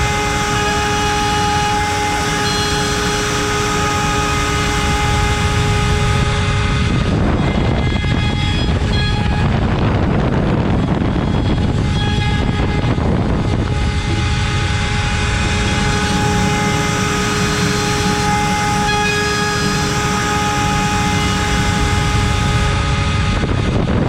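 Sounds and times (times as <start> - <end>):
router milling wood: 0.0 - 6.2
router spindle high-speed whine: 0.0 - 24.0.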